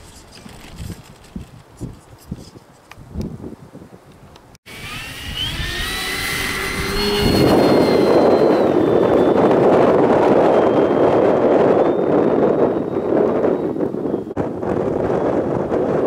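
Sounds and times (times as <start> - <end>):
wind on microphone: 0.0 - 16.0
model plane electric motor whine: 4.7 - 14.3.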